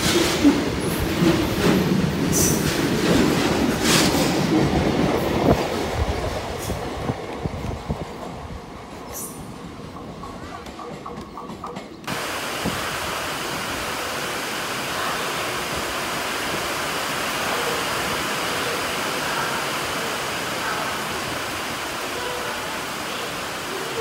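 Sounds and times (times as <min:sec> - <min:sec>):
heavy rain falling: 0:12.1 - 0:24.0.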